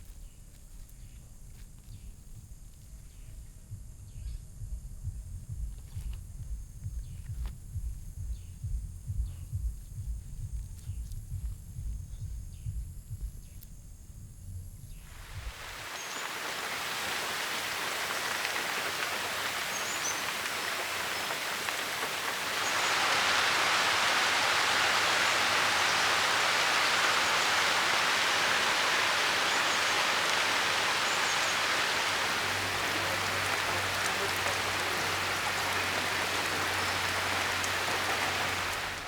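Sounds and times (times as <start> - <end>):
steady rain falling: 15.0 - 39.0.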